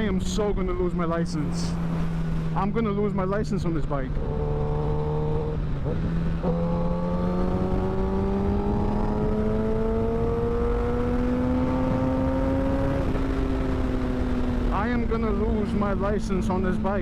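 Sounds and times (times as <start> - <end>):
motorcycle engine revving up: 4.1 - 14.8
wind on microphone: 4.2 - 14.5.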